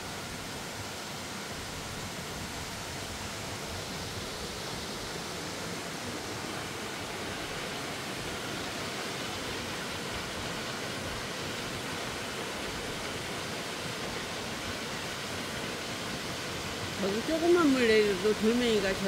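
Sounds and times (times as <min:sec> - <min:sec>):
water cascading over rocks: 0:00.0 - 0:19.0.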